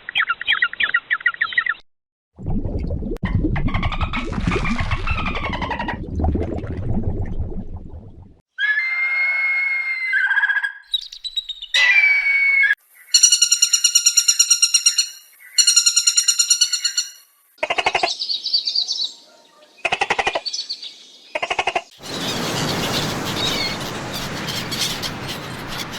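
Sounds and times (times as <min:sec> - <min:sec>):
bird-like chirps: 0:00.0 - 0:01.8, 0:10.2 - 0:19.2, 0:22.0 - 0:25.9
harsh squawks: 0:11.8 - 0:12.8, 0:22.0 - 0:25.9.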